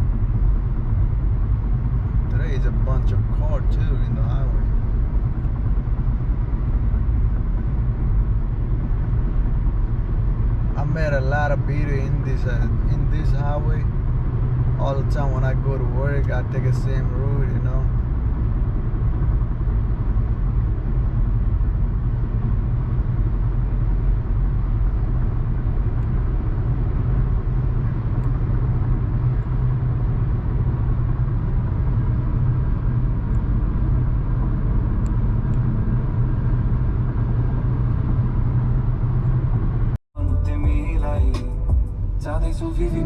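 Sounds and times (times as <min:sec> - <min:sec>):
car road and engine rumble: 0:00.0 - 0:43.0.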